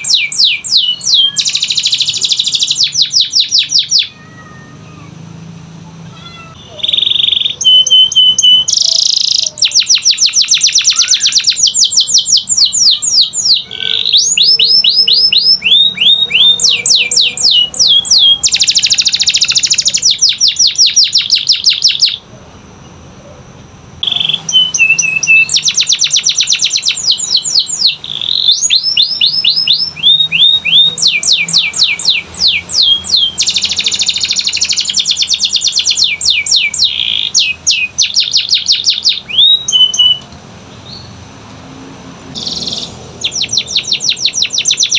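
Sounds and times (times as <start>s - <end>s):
canary singing trills: 0.0s - 5.4s, 6.1s - 41.3s, 42.2s - 44.9s.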